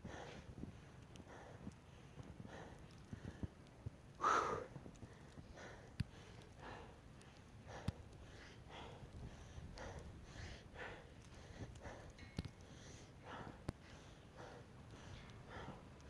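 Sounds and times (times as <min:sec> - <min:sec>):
person breathing hard: 0:00.0 - 0:03.6, 0:04.2 - 0:16.0.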